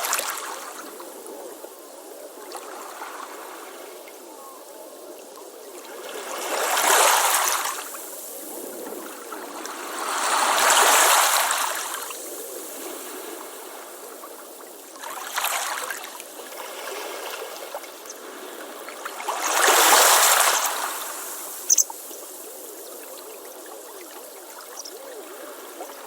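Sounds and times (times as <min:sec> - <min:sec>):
ocean waves washing on beach: 0:06.0 - 0:22.7
high chirp: 0:21.7 - 0:21.9.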